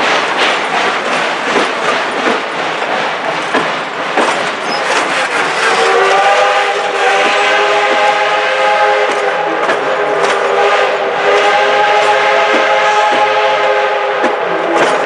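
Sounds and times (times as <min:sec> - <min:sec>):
train wheels clickety-clack: 0:00.0 - 0:15.0
train warning horn chord: 0:05.7 - 0:14.4.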